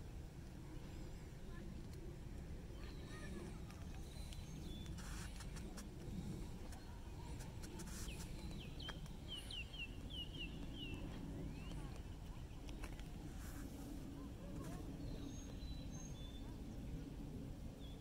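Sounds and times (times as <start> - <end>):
steady low rumble: 0.0 - 18.0
songbird singing: 2.6 - 13.1, 14.1 - 18.0.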